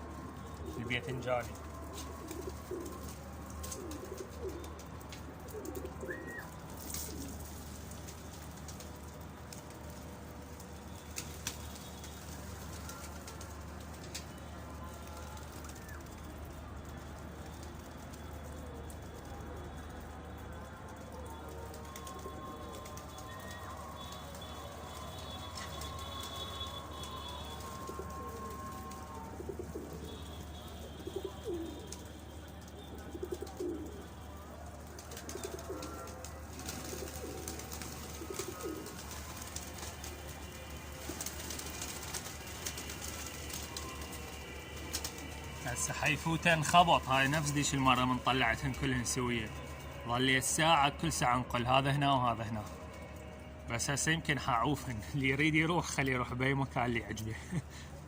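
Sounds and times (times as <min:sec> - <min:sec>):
pigeons cooing: 0:00.0 - 0:01.3, 0:01.9 - 0:08.0, 0:20.4 - 0:45.6.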